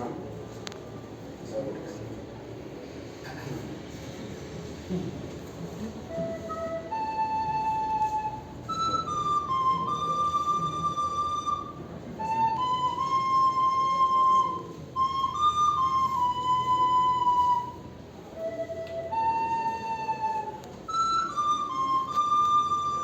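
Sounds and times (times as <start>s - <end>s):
slow flute melody: 6.0s - 23.0s.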